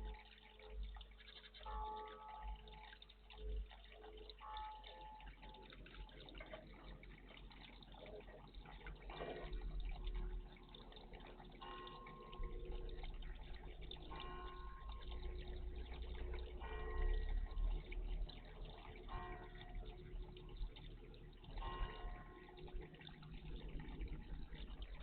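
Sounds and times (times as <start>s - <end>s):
water dripping and splashing: 0.0s - 25.0s.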